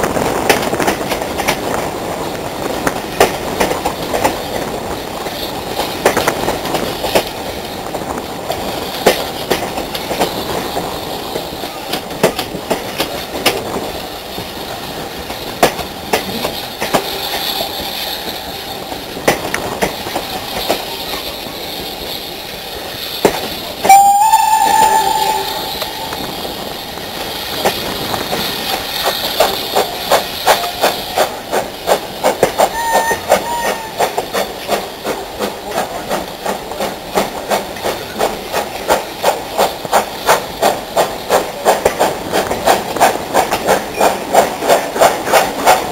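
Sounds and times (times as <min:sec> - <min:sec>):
wheels clicking over rail joints: 0:00.0 - 0:45.9
loud steam whistle: 0:23.8 - 0:26.7, 0:32.7 - 0:34.0
faint short whistle notes: 0:23.9 - 0:26.2.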